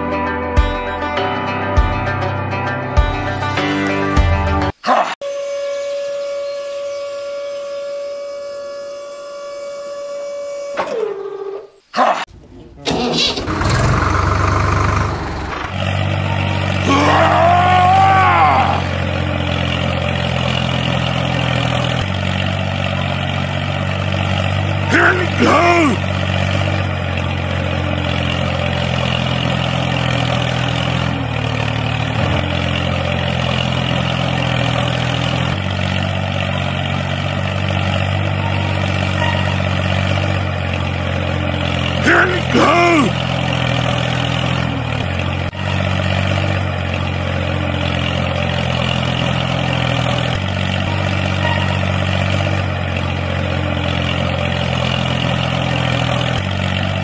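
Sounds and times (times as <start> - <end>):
tractor engine droning: 12.3 - 57.0
short voice-like call: 24.9 - 26.0, 42.0 - 43.2.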